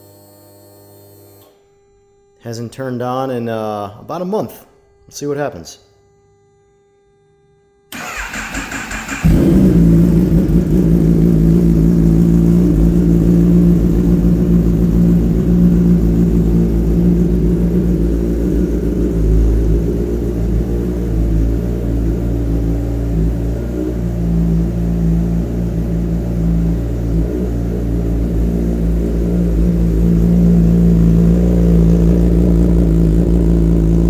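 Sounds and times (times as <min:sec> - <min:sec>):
engine starter cranking: 0:07.9 - 0:10.7
motorcycle engine idling loudly: 0:08.0 - 0:34.0.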